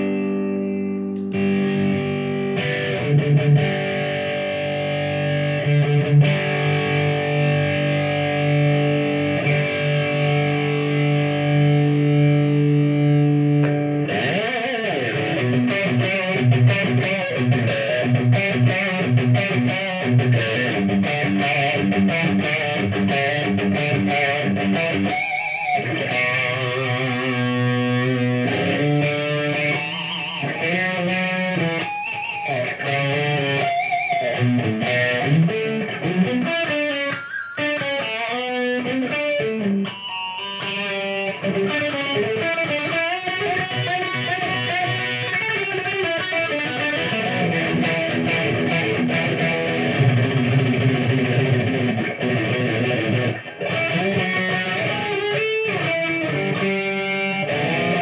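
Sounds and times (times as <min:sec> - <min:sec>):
electric guitar through effects: 0:00.0 - 0:58.0.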